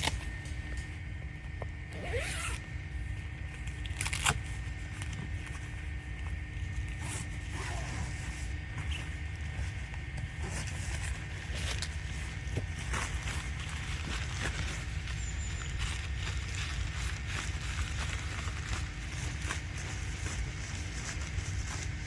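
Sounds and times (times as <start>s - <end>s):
zipper being pulled: 1.9s - 2.6s, 7.0s - 8.5s.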